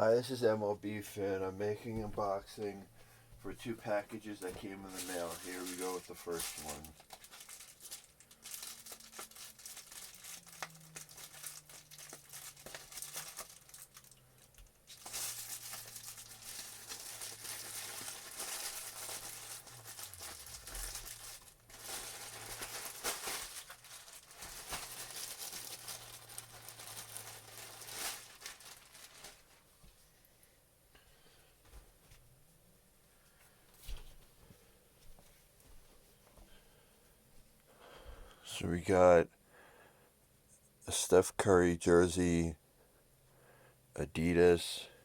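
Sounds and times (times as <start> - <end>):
packaging crinkling and tearing: 4.2 - 29.6.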